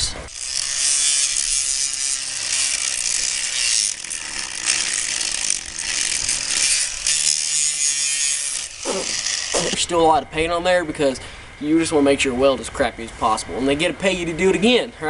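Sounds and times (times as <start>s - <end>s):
grinder grinding metal: 0.0s - 10.1s
faint motor hum: 0.0s - 15.0s.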